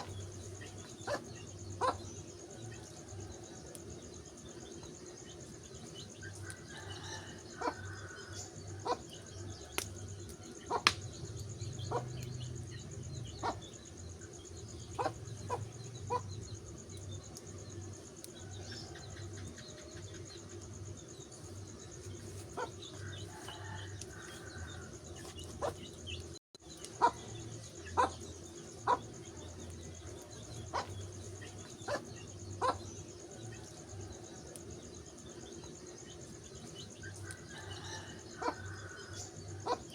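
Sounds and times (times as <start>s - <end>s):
wood fire crackling and popping: 9.6s - 13.1s.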